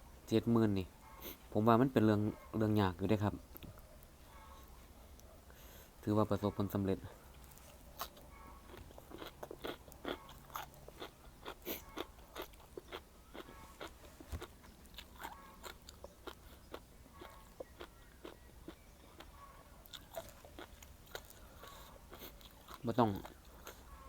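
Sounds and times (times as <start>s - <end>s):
person chewing crunchy food: 7.3s - 24.0s.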